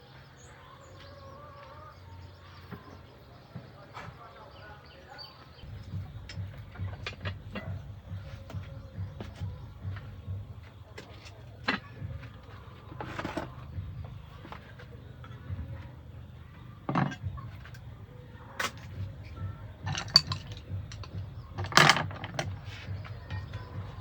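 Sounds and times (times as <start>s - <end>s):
kitchen utensils clinking: 19.8s - 22.5s.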